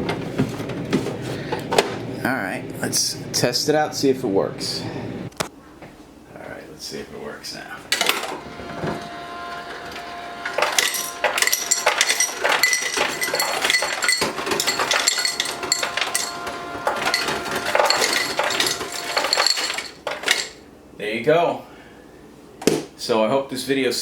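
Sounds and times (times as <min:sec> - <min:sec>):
dispenser motor humming: 0:07.9 - 0:20.7
ice cubes clattering: 0:10.5 - 0:20.6.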